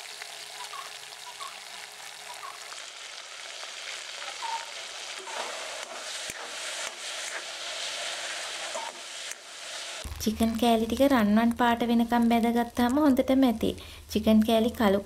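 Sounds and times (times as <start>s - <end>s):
chicken sizzling in oil: 0.0s - 11.4s.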